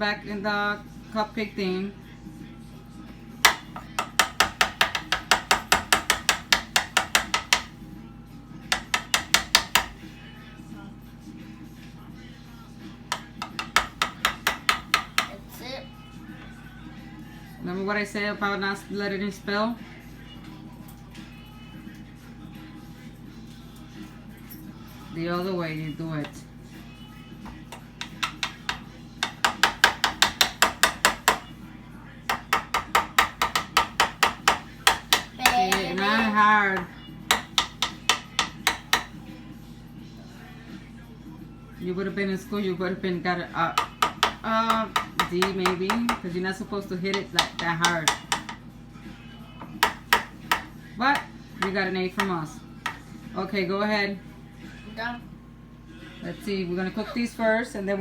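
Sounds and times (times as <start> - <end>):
tapping on a muffin pan: 3.5 - 7.8, 8.7 - 10.0, 13.1 - 15.4, 27.4 - 31.5, 32.3 - 36.2, 36.8 - 39.2, 43.8 - 46.4, 47.1 - 48.6, 49.6 - 53.0
utensil knocking on cookware: 3.5 - 7.8, 8.7 - 10.1, 13.1 - 15.4, 27.5 - 31.6, 32.3 - 39.2, 43.6 - 46.4, 47.0 - 48.7, 49.6 - 53.1.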